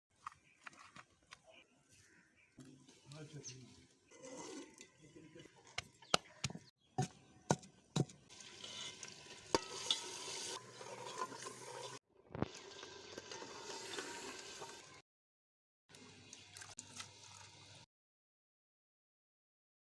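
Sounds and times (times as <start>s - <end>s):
food sizzling in pan: 8.3s - 15.0s.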